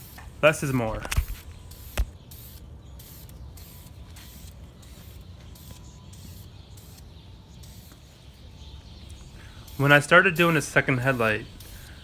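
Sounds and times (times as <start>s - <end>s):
aerosol spray hissing: 9.6s - 12.0s.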